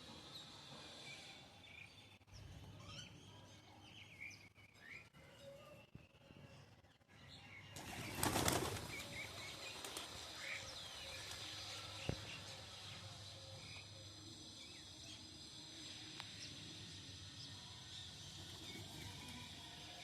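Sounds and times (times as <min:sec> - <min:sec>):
birds' wings flapping: 0:07.8 - 0:12.2.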